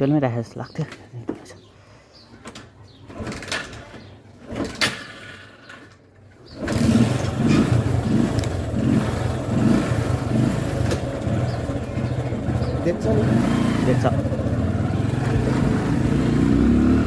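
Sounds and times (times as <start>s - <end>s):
motorcycle engine running: 6.6s - 17.0s.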